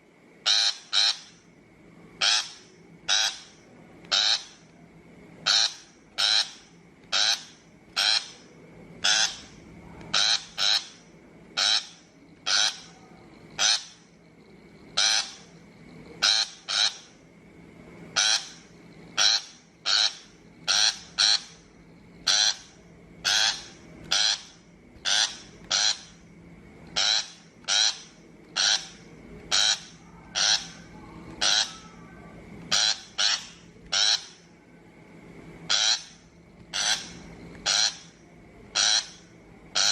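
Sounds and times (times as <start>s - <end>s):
harsh scolding bird calls: 0.4s - 1.5s, 2.2s - 4.7s, 5.4s - 14.2s, 14.9s - 15.6s, 16.2s - 17.2s, 18.2s - 26.2s, 26.9s - 32.0s, 32.7s - 34.5s, 35.7s - 39.9s.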